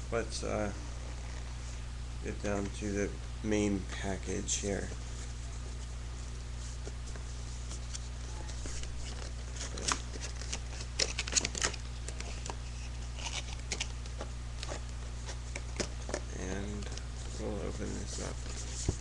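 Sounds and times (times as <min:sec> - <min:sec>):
steady low hum: 0:00.0 - 0:19.0
packaging clicks and rustles: 0:08.5 - 0:12.6.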